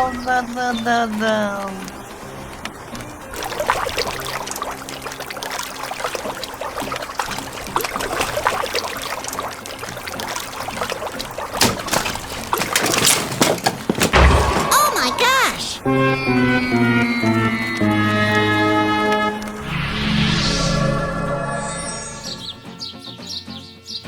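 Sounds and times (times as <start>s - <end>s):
water pouring and trickling: 0.6s - 14.9s
small splashes and clicks: 1.0s - 14.6s.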